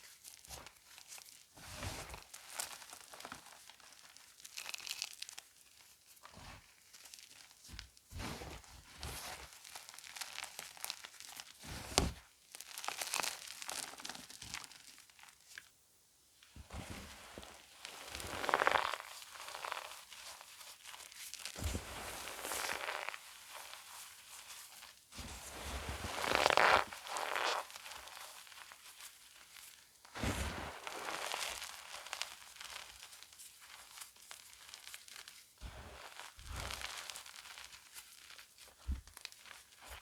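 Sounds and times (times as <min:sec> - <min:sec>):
chalk crunching by hand: 0:17.1 - 0:29.4, 0:30.2 - 0:37.7.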